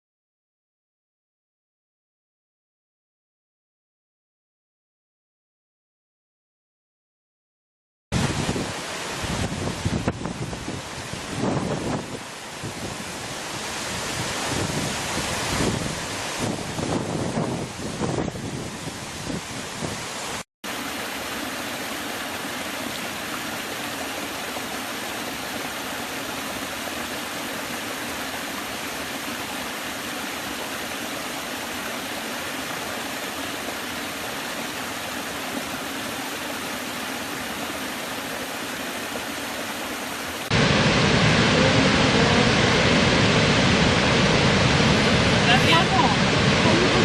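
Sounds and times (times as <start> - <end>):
waterfall roaring: 8.2 - 47.0.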